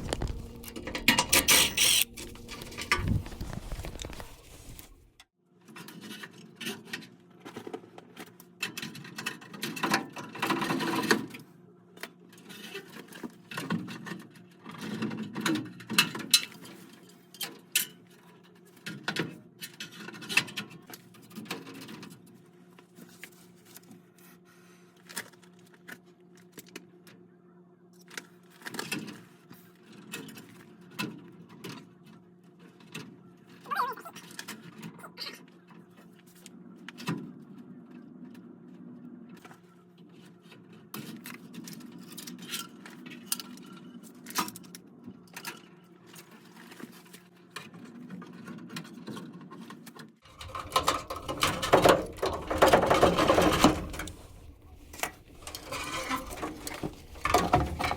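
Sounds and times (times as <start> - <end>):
hands handling metal parts: 0.0 - 5.2, 50.3 - 57.9
steady low hum: 0.0 - 5.2.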